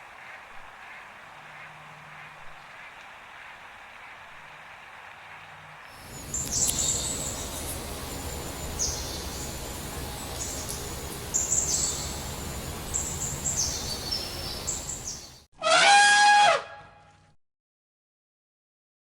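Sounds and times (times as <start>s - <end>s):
outdoor background noise: 0.0s - 17.4s
small bird chirping: 6.0s - 9.5s.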